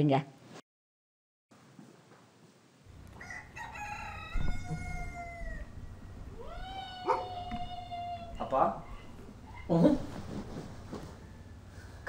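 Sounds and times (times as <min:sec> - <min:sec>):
rooster crowing: 0:03.0 - 0:09.7, 0:10.9 - 0:12.0.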